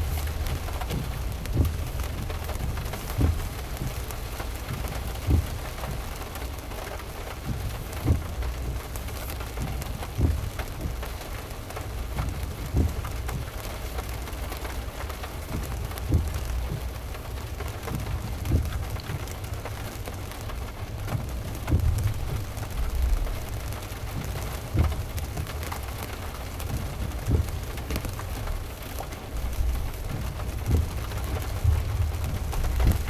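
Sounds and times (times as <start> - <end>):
dull low thumps: 0.0 - 6.1, 7.4 - 8.8, 9.6 - 11.0, 12.1 - 13.6, 15.5 - 19.6, 20.6 - 28.7, 29.3 - 33.0
heavy rain on a car: 0.0 - 33.0.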